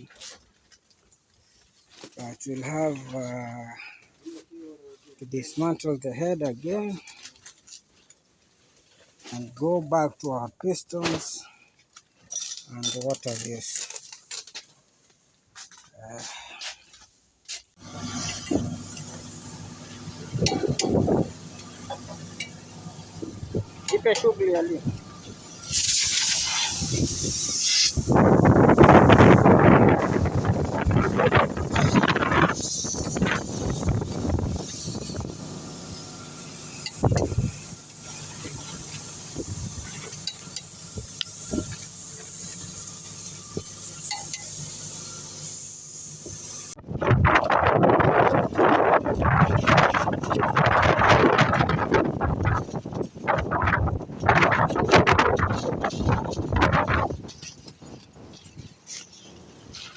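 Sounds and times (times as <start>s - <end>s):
metal tools clinking and knocking: 12.3s - 14.2s, 43.9s - 44.6s
steady low hum: 17.8s - 46.8s.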